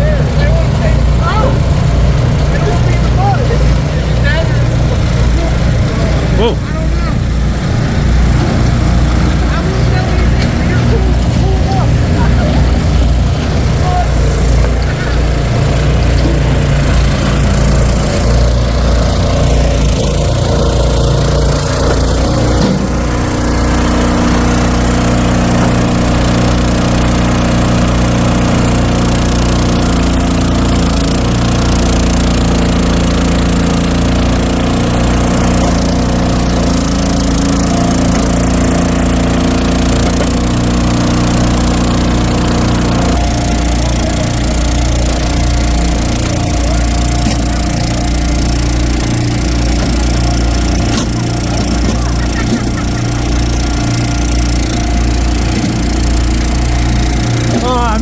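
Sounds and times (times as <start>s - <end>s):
engine running: 0.0s - 58.0s.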